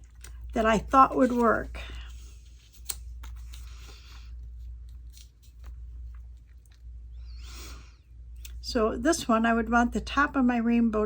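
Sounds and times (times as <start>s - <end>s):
steady low hum: 0.0s - 11.0s
paper rustling and sliding: 0.6s - 5.7s.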